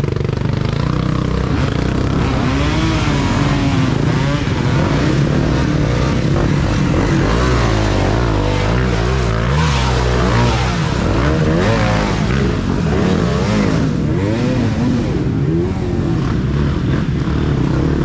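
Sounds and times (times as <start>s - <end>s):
dirt bike engines revving: 0.0s - 18.0s.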